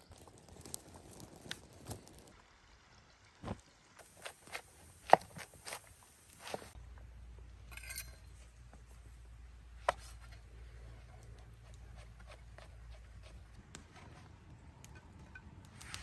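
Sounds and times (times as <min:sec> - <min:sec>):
low steady hum: 0:02.4 - 0:15.8
sharp clicks and clinks: 0:07.6 - 0:08.4.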